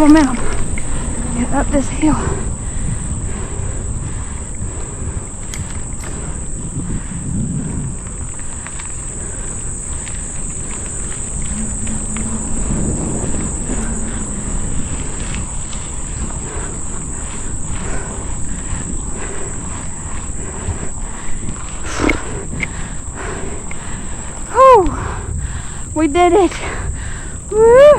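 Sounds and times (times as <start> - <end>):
insects buzzing: 0.0 - 27.9
wind rumble on microphone: 0.0 - 27.9
bicycle clicks and knocks: 4.3 - 24.5.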